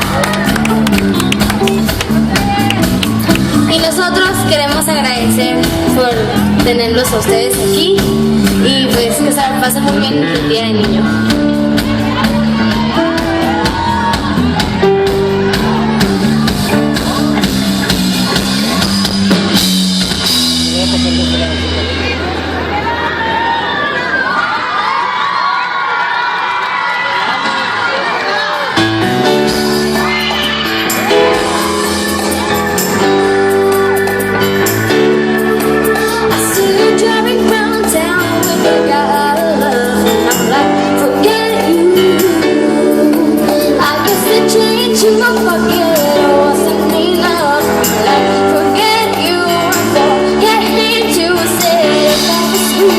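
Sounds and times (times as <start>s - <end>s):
drum kit beating: 0.0s - 22.7s, 28.8s - 52.9s
live rock band playing: 0.0s - 23.1s, 28.8s - 52.9s
female voice singing: 3.6s - 13.8s, 36.0s - 52.9s.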